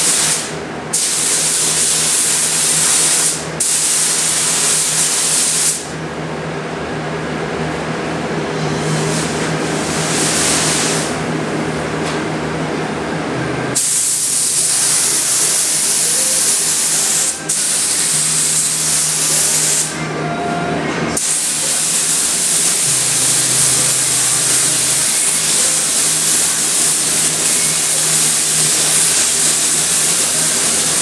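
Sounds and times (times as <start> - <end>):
spray gun hissing: 0.0 - 5.9, 13.8 - 19.9, 21.2 - 31.0
steady low hum: 0.0 - 31.0.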